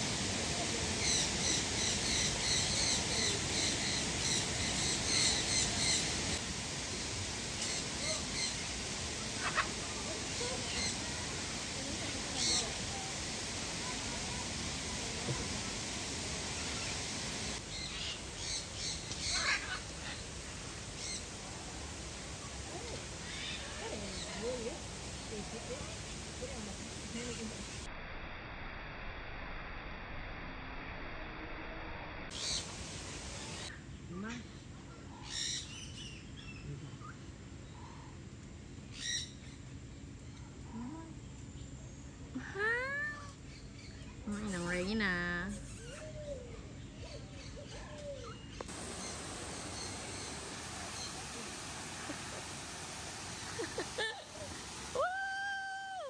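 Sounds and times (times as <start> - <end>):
steady hiss: 0.0 - 33.9, 42.2 - 46.2, 48.5 - 56.0
birds calling: 0.9 - 11.7, 15.5 - 21.4, 43.4 - 54.9
soft bird chirps: 43.4 - 53.3.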